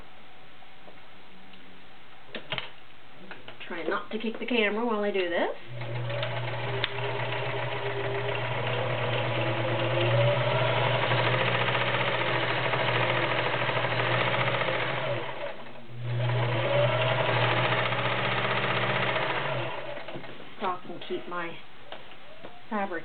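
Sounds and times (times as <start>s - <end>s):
sewing machine stitching: 5.7s - 20.4s.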